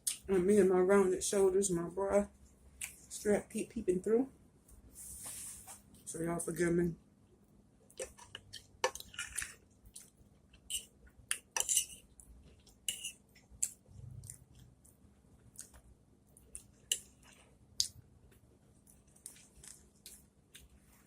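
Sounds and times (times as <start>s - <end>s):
chewing mouth clicks and smacks: 13.4s - 15.8s.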